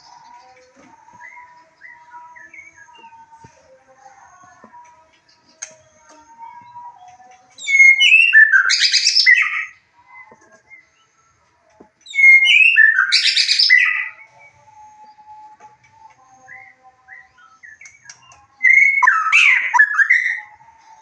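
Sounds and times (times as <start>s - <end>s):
bird song whistles and trills: 0.0s - 3.7s, 4.8s - 11.2s, 12.0s - 21.0s
faint whistled bird notes: 6.4s - 11.3s, 12.1s - 21.0s.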